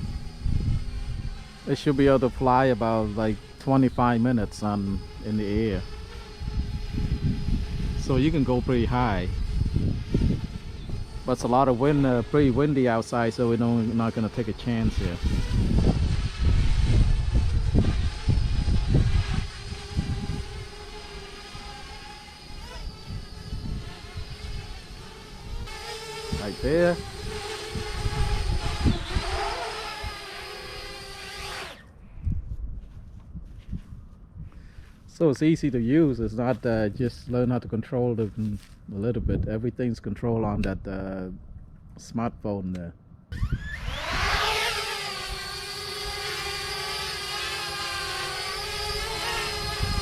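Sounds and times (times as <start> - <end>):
wind rumble on microphone: 0.0 - 22.0, 22.6 - 41.9, 43.1 - 46.3, 48.4 - 50.0
drone propellers whining: 0.0 - 32.0, 43.3 - 50.0.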